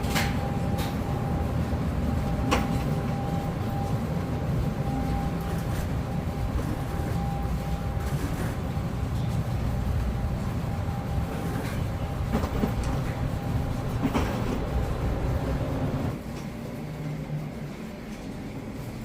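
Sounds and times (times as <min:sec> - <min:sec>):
moving vehicle rumble: 0:00.0 - 0:16.2.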